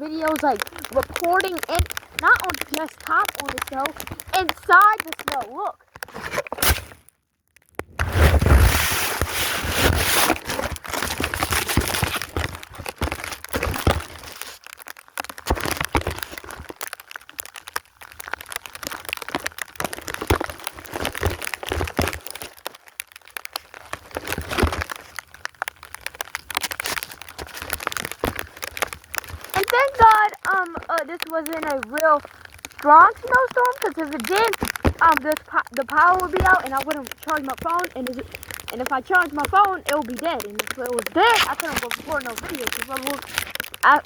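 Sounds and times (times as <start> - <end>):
snow crunching against microphone: 0.0 - 7.0, 7.9 - 14.7, 23.5 - 44.0.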